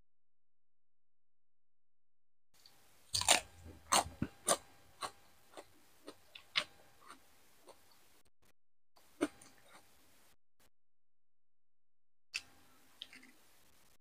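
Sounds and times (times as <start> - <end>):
crunchy chewing: 2.6 - 8.1, 9.0 - 9.9, 12.4 - 13.4.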